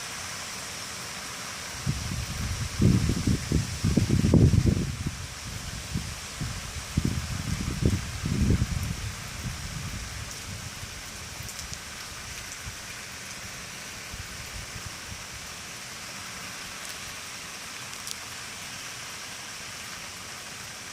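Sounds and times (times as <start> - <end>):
wind rushing through leaves: 0.0 - 20.9
wind buffeting microphone: 1.8 - 11.6.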